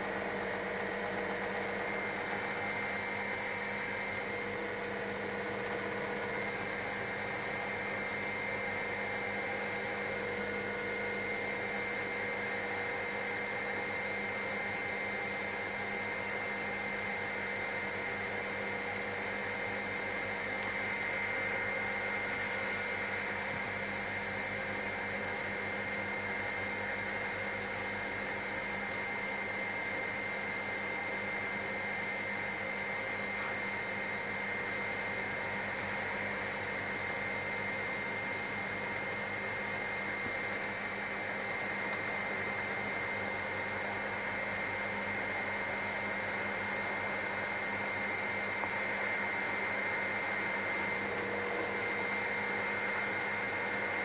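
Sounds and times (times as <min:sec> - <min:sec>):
helicopter cabin drone: 0:00.0 - 0:54.0.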